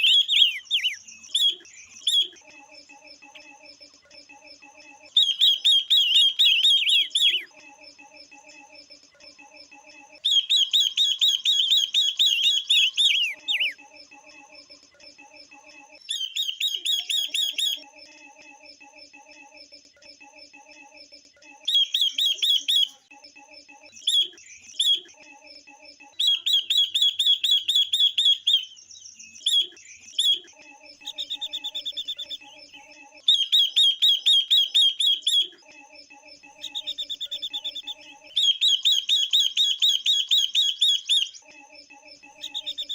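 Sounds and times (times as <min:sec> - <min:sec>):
songbirds chattering calls: 0:00.0 - 0:02.4, 0:05.2 - 0:07.5, 0:10.3 - 0:13.8.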